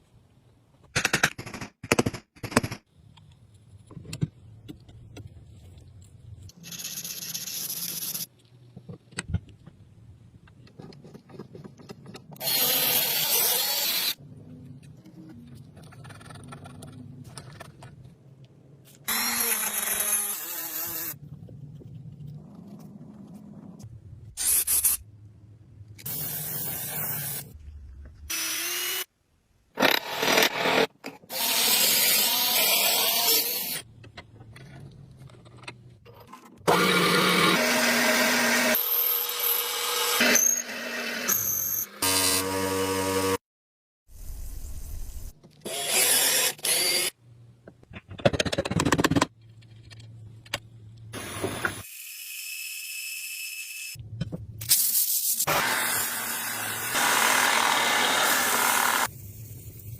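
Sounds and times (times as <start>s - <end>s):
power tool running: 55.5s - 59.1s.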